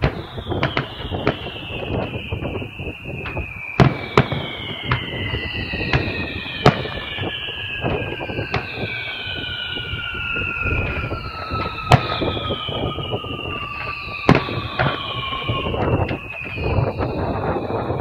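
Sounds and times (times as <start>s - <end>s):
fireworks bursting: 0.0s - 18.0s
high whistling tone sliding down: 0.0s - 18.0s
wind rumble on microphone: 0.0s - 18.0s.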